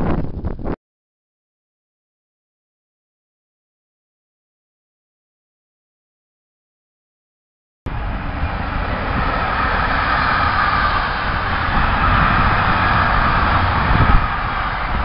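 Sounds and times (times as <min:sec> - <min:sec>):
train rumbling: 0:07.9 - 0:15.0.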